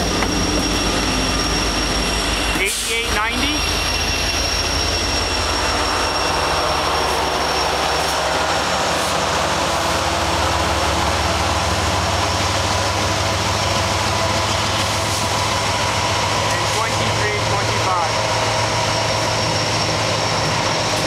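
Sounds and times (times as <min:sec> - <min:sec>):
high whine: 0:00.0 - 0:12.5
freight train passing: 0:00.0 - 0:21.0.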